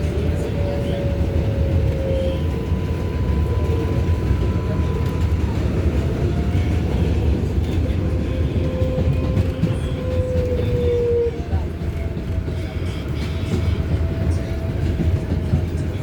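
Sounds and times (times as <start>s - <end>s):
subway wheels rumbling on rails: 0.0s - 16.0s.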